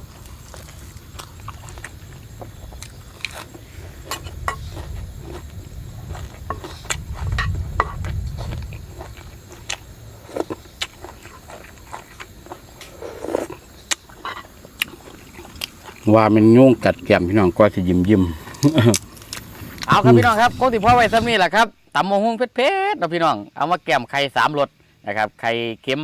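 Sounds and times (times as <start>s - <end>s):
person eating crunchy food: 0.0s - 16.2s
low rumble: 0.9s - 10.3s, 19.6s - 21.4s.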